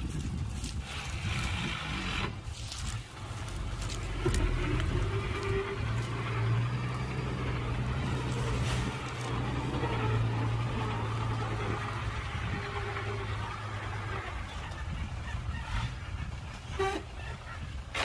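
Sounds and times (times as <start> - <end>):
heavy machinery diesel engine running: 0.0 - 18.0.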